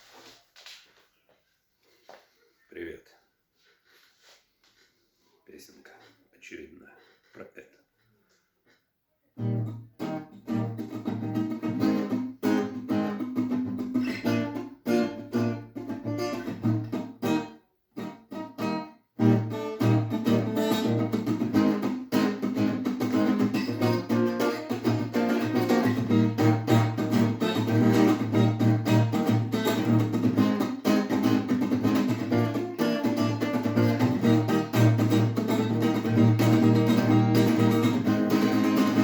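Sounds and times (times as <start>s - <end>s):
guitar strummed rhythmically: 9.4s - 39.0s.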